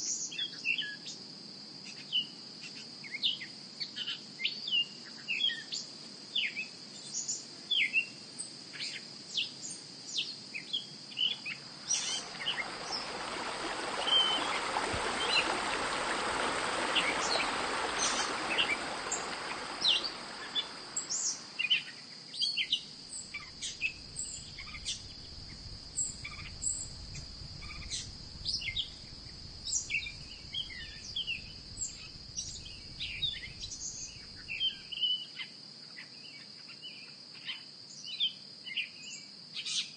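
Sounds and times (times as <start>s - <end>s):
insect buzz: 8.7s - 35.5s
birds chirping: 11.2s - 35.0s
broad rushing sound: 11.7s - 21.6s.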